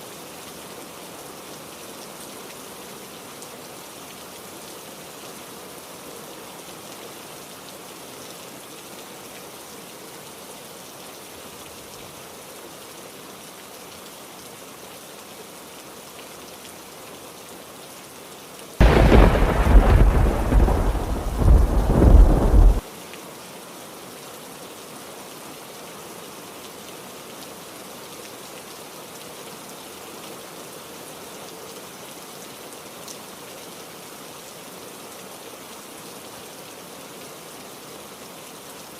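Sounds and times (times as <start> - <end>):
heavy rain: 0.1 - 38.9
thunder rumbling: 18.8 - 22.8.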